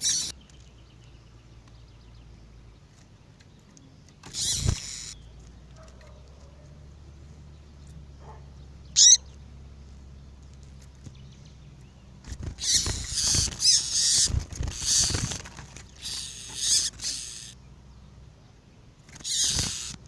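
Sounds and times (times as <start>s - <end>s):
sharp high bird chirp: 0.0s - 0.4s, 8.9s - 9.4s, 16.0s - 17.6s
harsh scratchy bird twittering: 0.0s - 2.2s, 3.8s - 6.8s, 8.8s - 9.4s, 10.9s - 17.6s, 19.0s - 20.0s.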